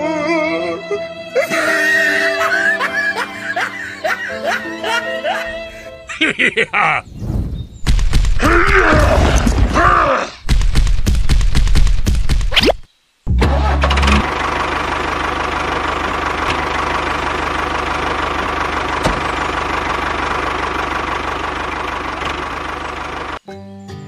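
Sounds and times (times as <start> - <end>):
engine starting and running: 13.3 - 23.4.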